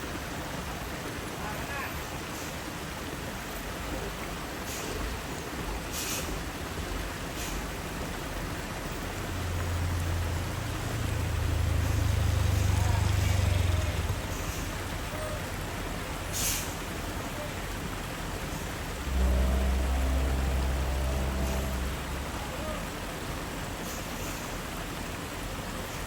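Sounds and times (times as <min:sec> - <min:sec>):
truck engines rumbling: 0:00.0 - 0:26.0
air hiss: 0:04.6 - 0:05.1, 0:05.9 - 0:06.4, 0:07.3 - 0:07.8, 0:16.3 - 0:16.9.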